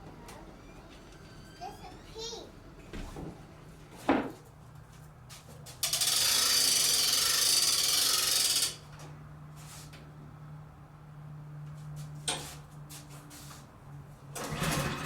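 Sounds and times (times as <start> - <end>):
rapid mechanical rattling: 5.8 - 8.9.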